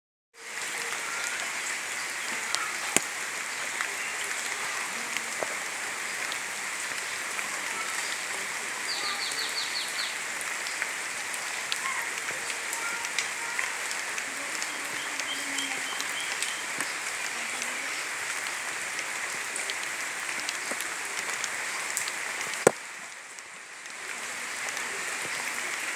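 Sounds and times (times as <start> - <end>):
rain falling steadily: 0.4 - 25.9.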